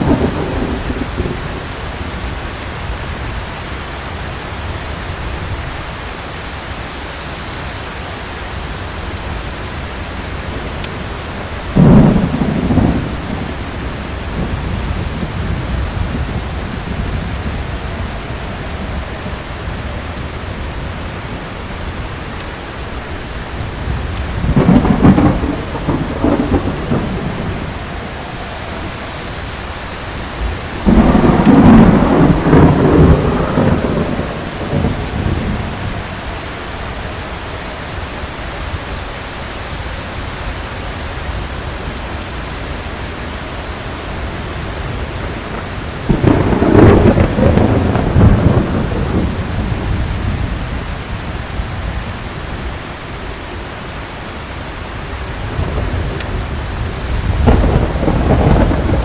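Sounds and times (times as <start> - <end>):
thunder clap: 0.0 - 3.4, 9.3 - 22.0, 22.6 - 37.2, 44.0 - 52.0, 55.2 - 59.0
heavy rain: 0.0 - 59.0
rolling thunder rumble: 0.0 - 59.0.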